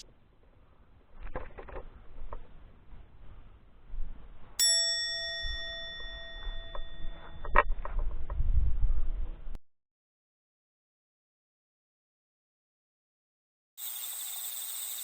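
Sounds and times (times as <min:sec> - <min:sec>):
metallic bell-like ding: 0:04.6 - 0:07.6.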